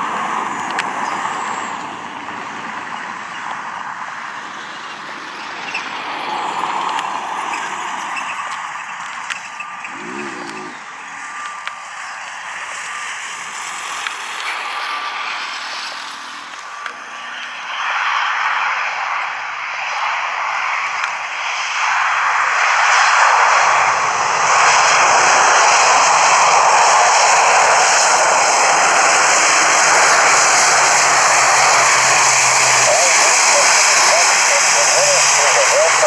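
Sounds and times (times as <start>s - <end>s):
airliner engines: 0.0s - 36.0s
low hum: 28.6s - 36.0s.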